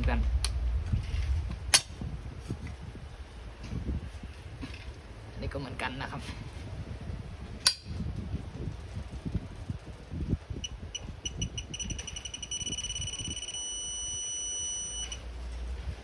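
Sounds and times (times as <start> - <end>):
torque wrench beeping: 10.6 - 15.2.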